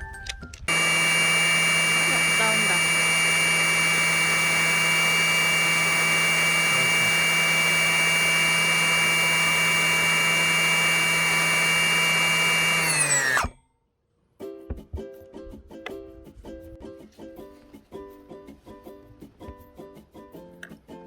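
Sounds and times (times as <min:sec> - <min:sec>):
electric chainsaw motor whining: 0:00.7 - 0:13.6.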